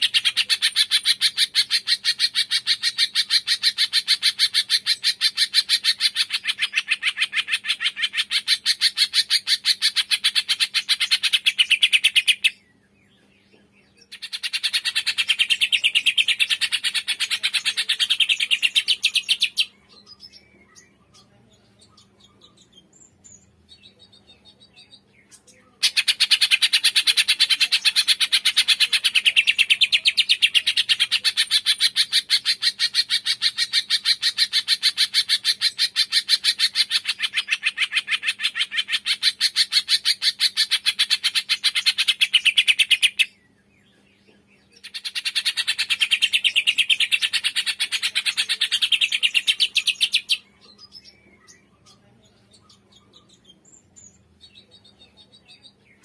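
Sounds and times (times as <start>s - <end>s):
songbird trilling: 14.0s - 43.4s, 44.8s - 56.0s.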